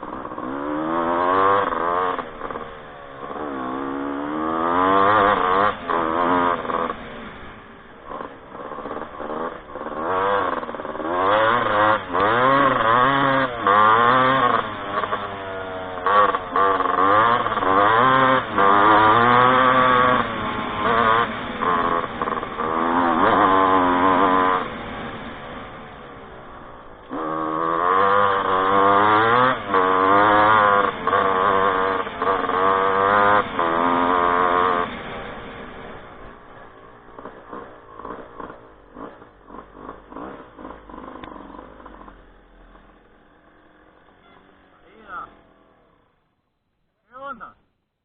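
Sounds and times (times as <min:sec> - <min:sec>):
motorcycle engine revving: 0:00.0 - 0:46.5.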